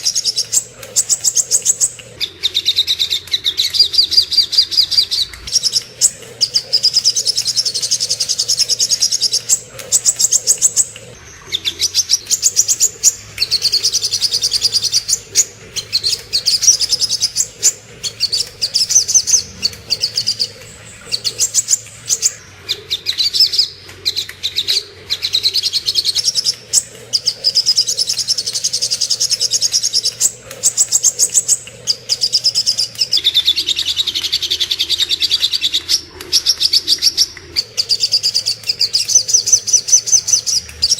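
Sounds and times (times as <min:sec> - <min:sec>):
bird chattering trills: 0:00.0 - 0:40.9
faint low hum: 0:00.0 - 0:40.9.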